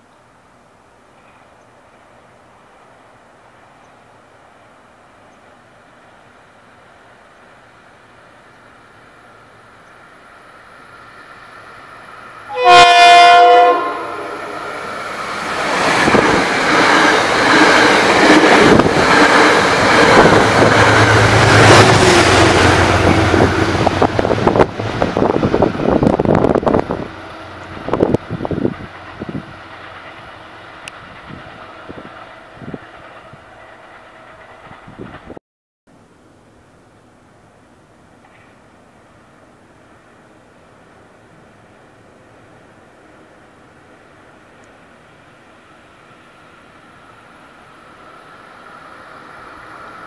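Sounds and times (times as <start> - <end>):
train rushing past: 2.7 - 35.4, 39.0 - 50.0
train horn blast: 12.5 - 14.8
wheels clicking over rail joints: 38.2 - 38.7.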